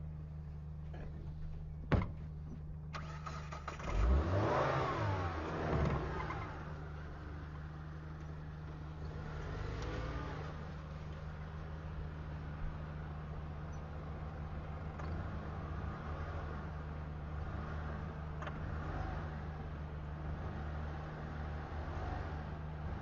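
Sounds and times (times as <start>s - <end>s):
car engine revving: 3.0s - 7.3s, 8.9s - 11.0s.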